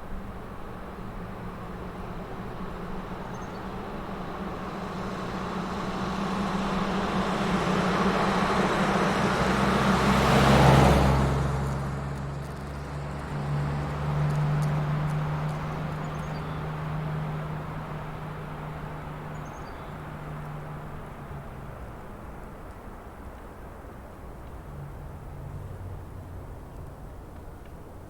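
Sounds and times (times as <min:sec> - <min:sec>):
vehicle driving past: 0:04.0 - 0:28.0.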